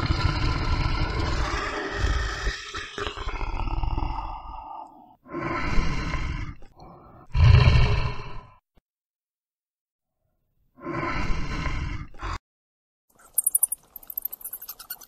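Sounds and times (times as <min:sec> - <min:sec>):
large animal roaring: 0:00.0 - 0:08.6, 0:10.8 - 0:12.4.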